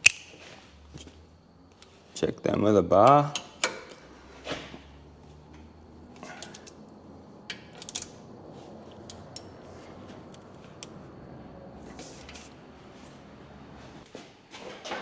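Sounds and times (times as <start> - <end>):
socket wrench clicking on bolts: 0.0 - 0.4, 7.5 - 8.2.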